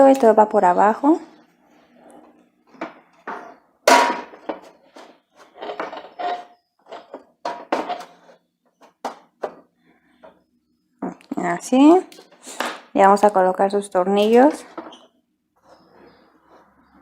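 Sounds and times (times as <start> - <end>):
grill cover clattering: 3.9 - 4.6.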